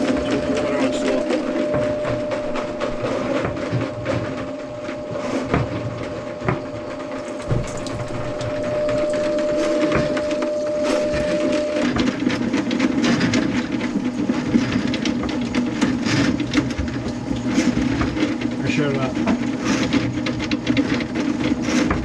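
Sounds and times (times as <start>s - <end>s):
steady hum: 0.0s - 14.8s
drain snake cable rattling: 7.1s - 9.5s.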